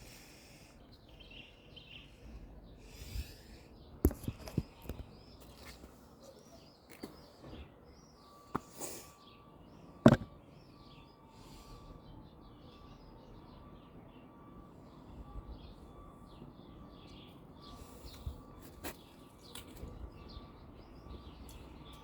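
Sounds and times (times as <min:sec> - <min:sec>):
small birds chirping: 0:00.0 - 0:22.0
sharp knocks: 0:10.1 - 0:10.3.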